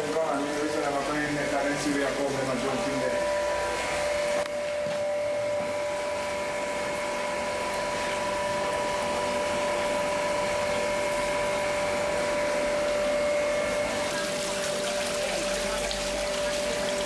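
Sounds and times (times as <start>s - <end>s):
water pump whining: 0.0s - 17.0s
splashing water: 9.2s - 17.0s.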